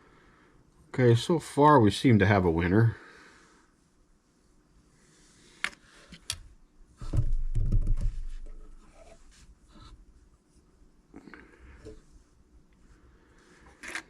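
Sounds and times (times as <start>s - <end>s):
knocking and rubbing of parts: 7.0s - 9.9s.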